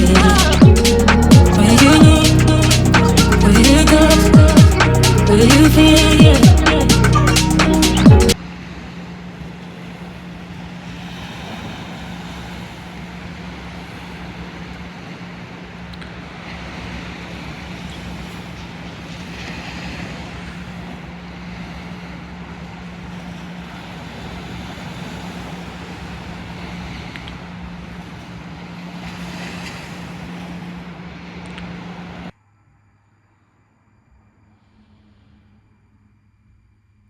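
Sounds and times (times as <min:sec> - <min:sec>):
vehicle running hum: 0:00.0 - 0:08.4, 0:22.7 - 0:32.3.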